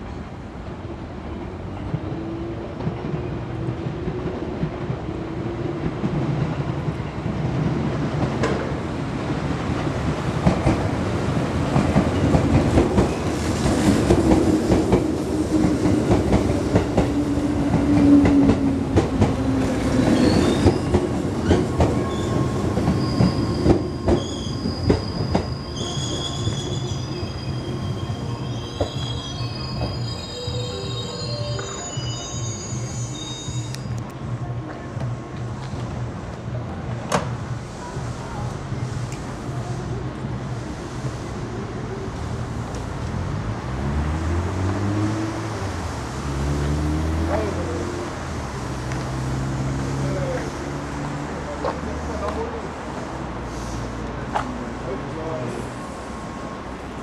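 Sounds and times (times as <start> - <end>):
train wheels squealing: 19.9 - 34.0.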